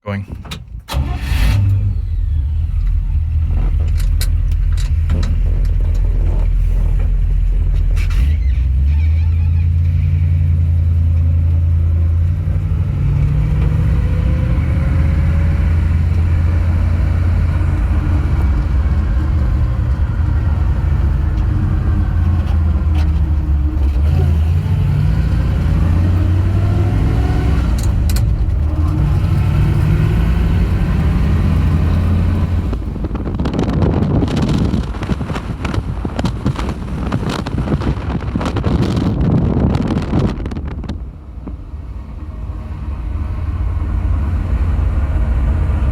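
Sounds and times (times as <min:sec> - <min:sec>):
truck engine droning: 0:00.8 - 0:45.9
clicks and rattles: 0:03.5 - 0:08.2.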